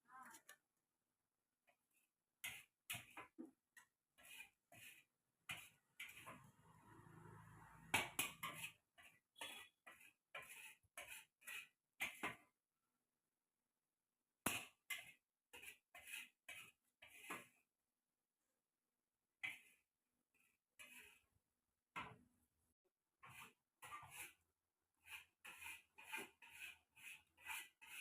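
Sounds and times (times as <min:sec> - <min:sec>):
short sharp scrapes and clicks: 0:04.2 - 0:12.2.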